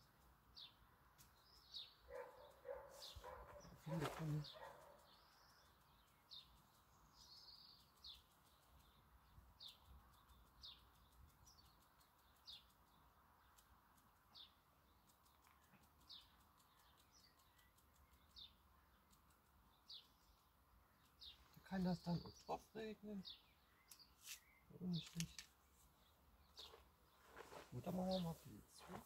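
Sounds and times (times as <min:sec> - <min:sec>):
small bird chirping faintly: 0:00.0 - 0:29.0.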